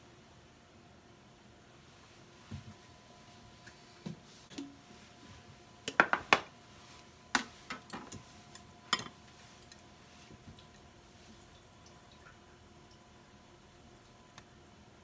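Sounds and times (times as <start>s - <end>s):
kitchenware clinking and knocking: 5.9s - 6.5s.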